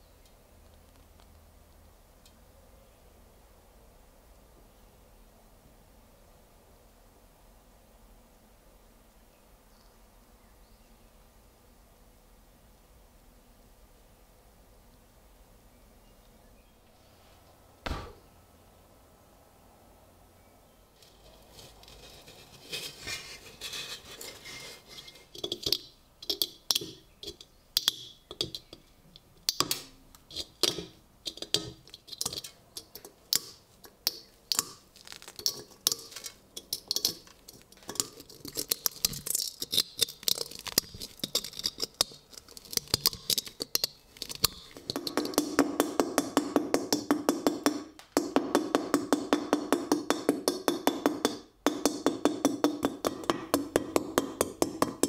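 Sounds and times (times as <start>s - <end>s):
tool clicking and tapping on steel: 23.8s - 55.0s.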